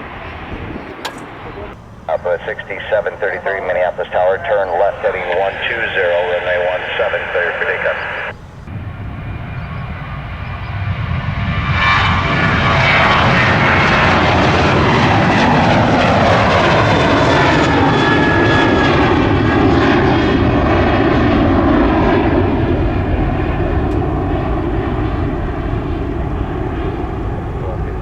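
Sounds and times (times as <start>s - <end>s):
jet engines roaring past: 0.0s - 28.0s.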